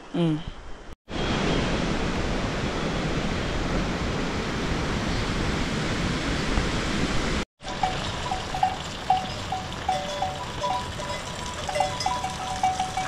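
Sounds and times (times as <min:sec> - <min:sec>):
heavy rain rushing: 0:07.6 - 0:13.0.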